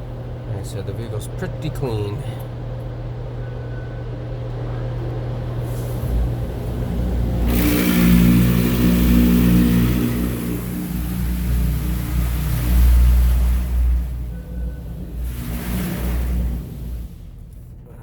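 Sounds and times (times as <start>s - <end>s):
van engine rumble: 0.0s - 18.0s
loud steady hiss: 5.9s - 17.5s.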